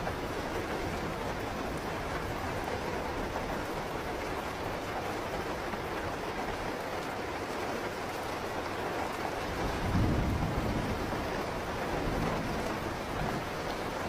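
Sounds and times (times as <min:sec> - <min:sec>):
heavy rain falling: 0:00.0 - 0:14.0
thunder rumbling: 0:09.5 - 0:14.0.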